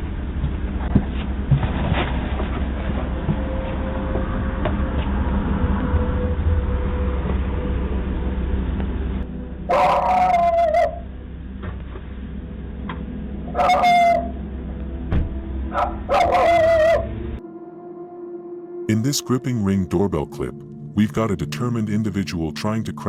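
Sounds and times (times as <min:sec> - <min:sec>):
low steady rumble: 0:00.0 - 0:09.7, 0:10.8 - 0:13.6, 0:14.2 - 0:16.2
dog whining: 0:09.7 - 0:11.0, 0:13.5 - 0:14.4, 0:15.7 - 0:17.1.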